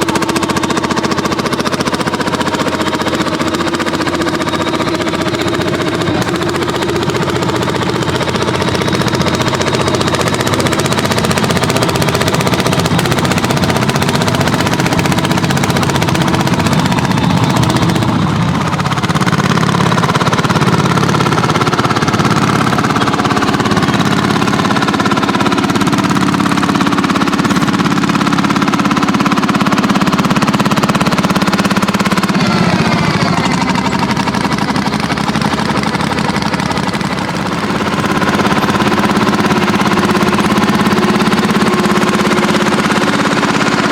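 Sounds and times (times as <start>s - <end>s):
tractor engine pounding: 0.0s - 43.9s.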